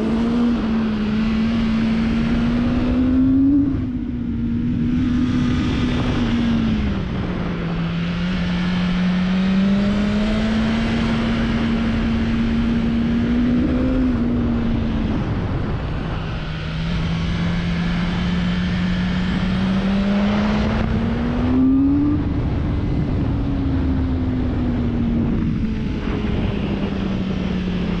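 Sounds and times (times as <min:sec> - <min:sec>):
motorcycle engine revving: 0:00.0 - 0:28.0
wind noise on microphone: 0:00.0 - 0:28.0.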